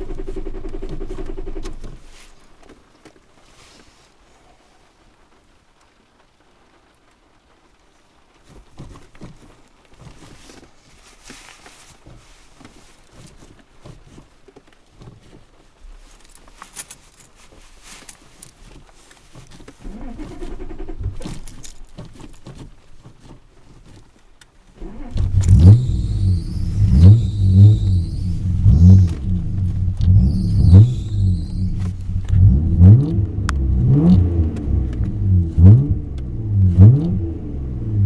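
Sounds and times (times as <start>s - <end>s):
clicks and handling noise: 0.0s - 36.4s
car engine revving loudly: 25.1s - 38.0s.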